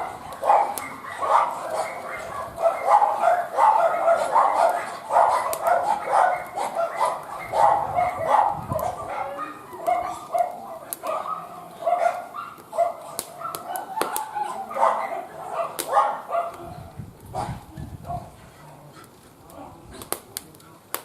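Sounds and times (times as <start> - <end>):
dog barking and whining: 0.0 - 16.8
wood fire crackling: 0.0 - 21.0.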